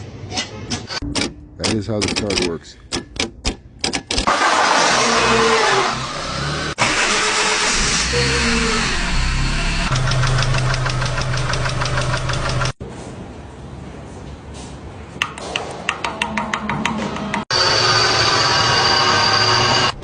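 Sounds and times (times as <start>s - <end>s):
rapid even ticking: 1.1s - 4.3s.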